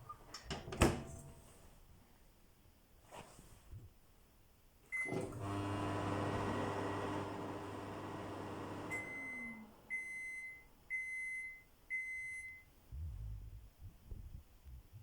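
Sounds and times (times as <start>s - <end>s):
microwave beeps: 4.9s - 12.7s
oven-microwave humming: 5.1s - 10.4s.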